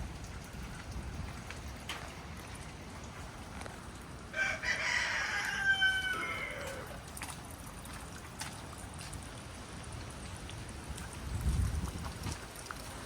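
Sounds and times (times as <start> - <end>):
wind and rain hiss: 0.0 - 13.0
rooster crowing: 4.3 - 7.0.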